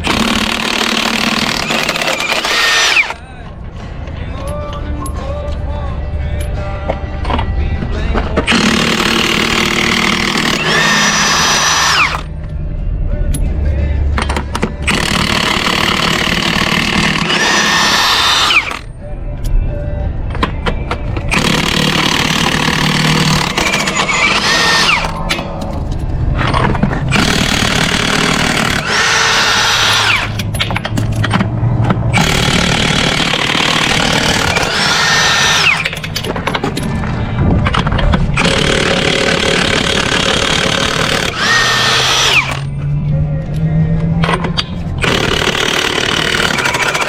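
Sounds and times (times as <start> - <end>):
cordless impact wrench running: 0.0 - 3.2, 8.5 - 12.3, 14.9 - 18.9, 21.3 - 25.2, 27.1 - 30.4, 32.1 - 36.0, 38.4 - 42.7, 45.0 - 47.0.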